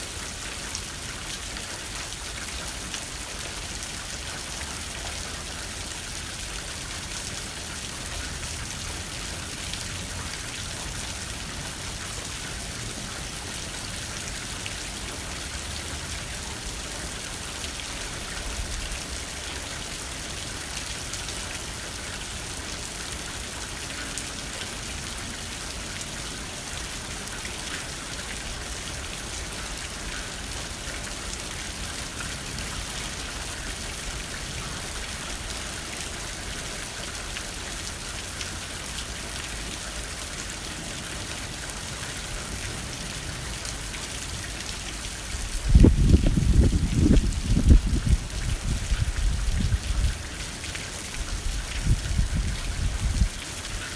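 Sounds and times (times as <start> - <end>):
low wind rumble: 45.4 - 50.2.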